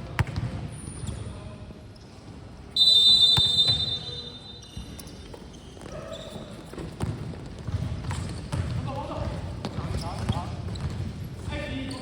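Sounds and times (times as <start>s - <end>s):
basketball bouncing on gym floor: 0.0s - 0.6s, 4.6s - 12.0s
referee's whistle blast: 2.8s - 4.7s.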